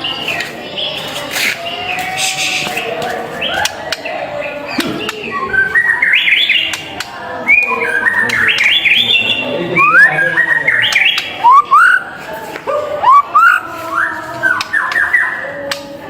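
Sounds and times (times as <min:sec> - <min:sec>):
bird singing whistled notes: 0:04.8 - 0:06.8, 0:07.4 - 0:12.1.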